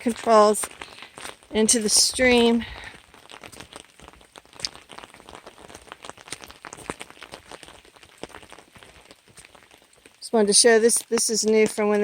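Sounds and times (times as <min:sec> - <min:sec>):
water trickling and splashing: 0:00.0 - 0:12.0.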